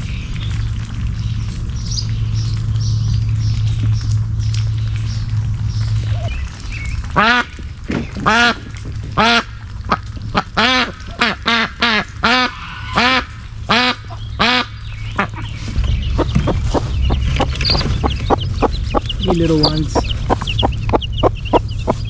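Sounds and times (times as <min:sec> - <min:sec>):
duck quacking: 0:07.2 - 0:07.6, 0:08.2 - 0:08.6, 0:09.2 - 0:15.6.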